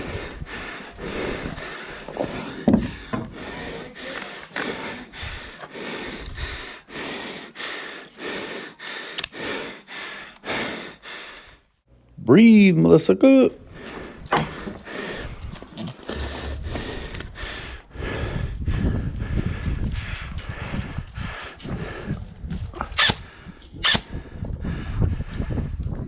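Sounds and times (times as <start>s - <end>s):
hard breathing: 0.0s - 11.9s, 13.6s - 25.9s
footsteps: 15.6s - 17.2s.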